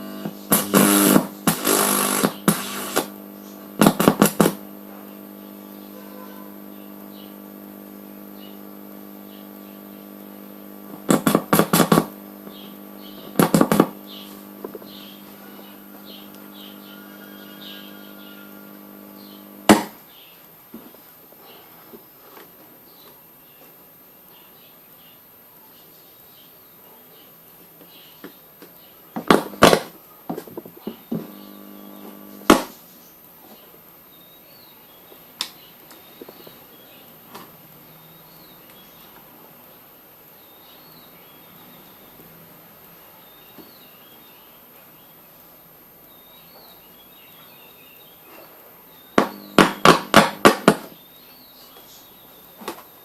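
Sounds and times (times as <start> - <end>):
steady hum: 0.0 - 20.3, 29.2 - 29.9, 31.0 - 32.8, 48.6 - 51.0
sharp knocks: 49.2 - 50.9.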